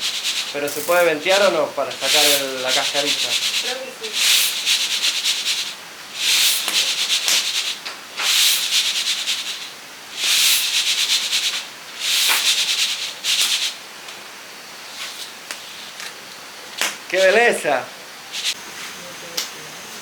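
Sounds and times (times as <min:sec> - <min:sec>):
coffee beans rattling: 0:00.0 - 0:13.8, 0:14.8 - 0:16.3, 0:17.1 - 0:18.6.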